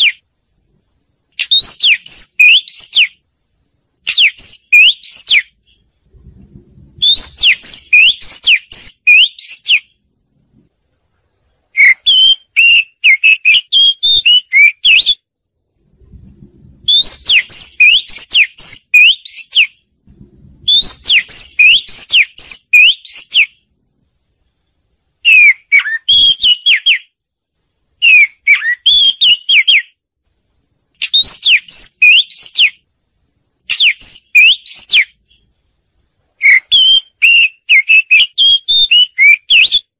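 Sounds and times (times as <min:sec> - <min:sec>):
bird singing whistled notes: 0:00.0 - 0:00.3, 0:01.3 - 0:03.2, 0:04.0 - 0:06.0, 0:07.0 - 0:10.0, 0:11.7 - 0:15.3, 0:16.8 - 0:20.0, 0:20.6 - 0:23.7, 0:24.5 - 0:27.2, 0:28.0 - 0:30.0, 0:31.0 - 0:32.9, 0:33.6 - 0:35.5, 0:36.4 - 0:39.9.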